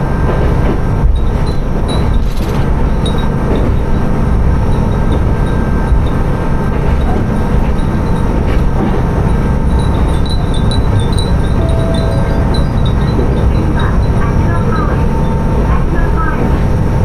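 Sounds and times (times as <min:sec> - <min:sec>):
diesel railcar rumbling on rails: 0:00.0 - 0:17.0
glass wind chimes tinkling: 0:09.6 - 0:15.1.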